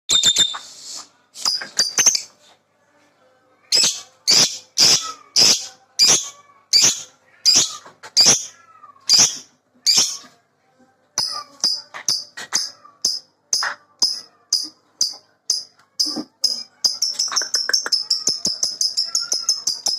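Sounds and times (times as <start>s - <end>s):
lovebird chirps: 16.4s - 19.9s.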